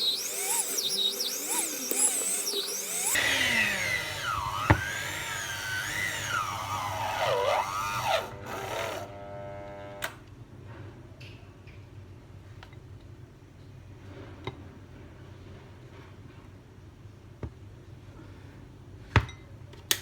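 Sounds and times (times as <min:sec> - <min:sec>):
electric mixer motor whine: 0:00.0 - 0:10.1.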